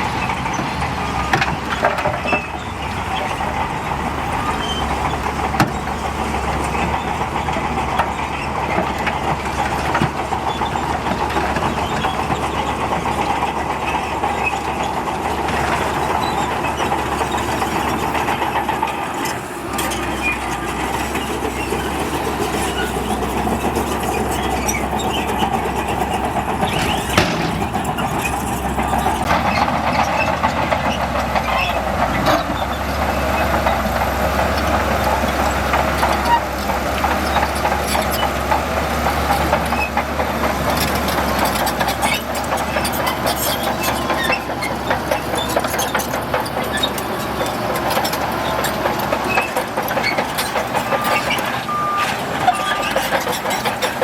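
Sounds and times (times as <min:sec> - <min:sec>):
bulldozer diesel engine: 0:00.0 - 0:54.0
metallic clanks: 0:15.5 - 0:30.6.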